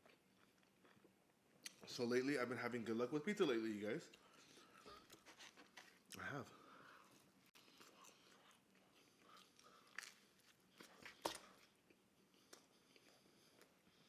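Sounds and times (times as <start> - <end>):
person chewing pizza: 4.1 - 14.0.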